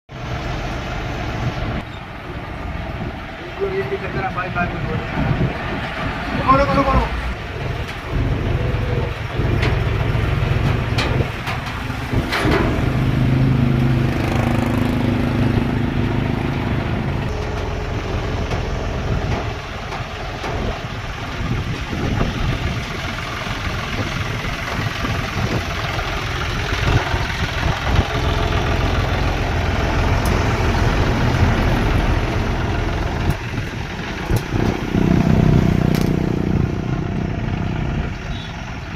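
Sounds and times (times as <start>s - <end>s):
tractor engine running: 0.1s - 38.9s
knocks and clatters: 7.6s - 15.1s, 16.5s - 23.9s.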